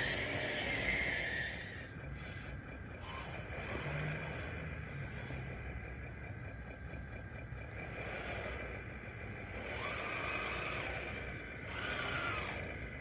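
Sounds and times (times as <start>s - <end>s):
motor whine: 0.0s - 1.9s, 3.0s - 5.6s, 7.9s - 13.0s
rc dozer drive and hydraulics: 0.0s - 5.9s, 7.6s - 13.0s.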